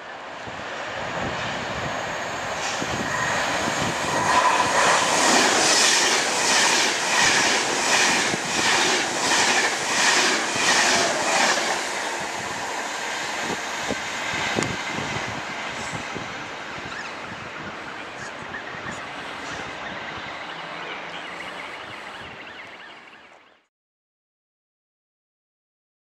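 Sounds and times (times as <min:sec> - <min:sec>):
electric train passing at speed: 0:00.0 - 0:23.2
train wheels clacking: 0:02.6 - 0:13.8.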